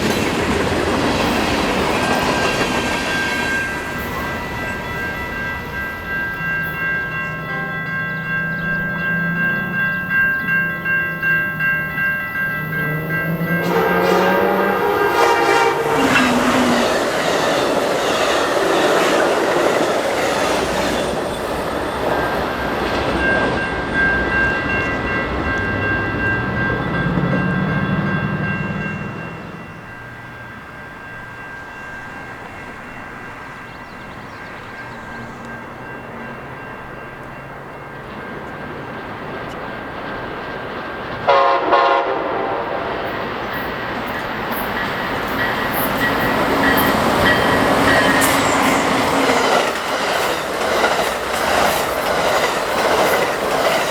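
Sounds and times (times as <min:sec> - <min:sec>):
wheels clattering on rails: 0:00.0 - 0:30.4, 0:42.9 - 0:53.9
train horn: 0:12.6 - 0:17.3, 0:41.2 - 0:43.1.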